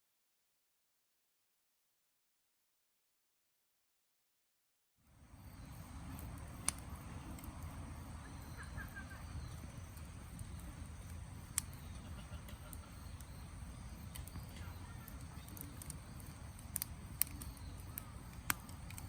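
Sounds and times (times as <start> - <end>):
low outdoor rumble: 5.1 - 19.0
sharp clicks: 6.1 - 7.7, 9.5 - 19.0.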